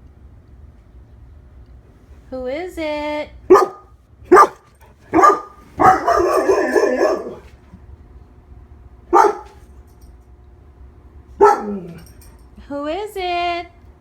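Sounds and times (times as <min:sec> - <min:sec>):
dog barking: 0:03.5 - 0:07.5, 0:09.1 - 0:09.6, 0:11.4 - 0:12.1.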